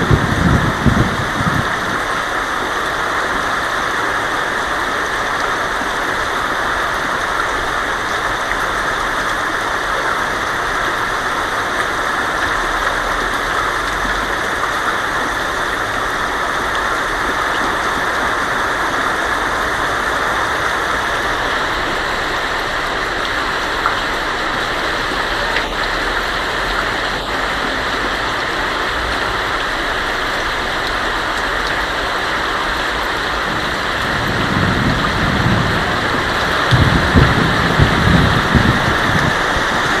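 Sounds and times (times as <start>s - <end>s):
low thunder rumble: 0.0s - 2.2s, 33.2s - 40.0s
heavy rain on a tin roof: 0.0s - 40.0s.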